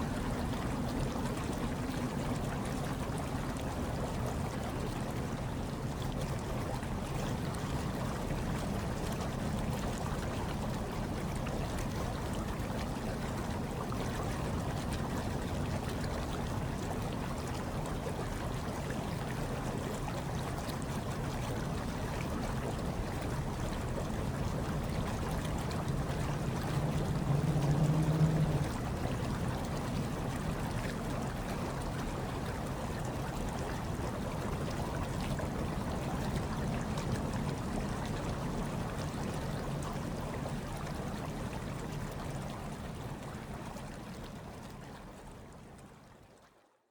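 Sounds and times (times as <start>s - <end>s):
water running and bubbling: 0.0s - 46.3s
low hum: 25.2s - 30.0s.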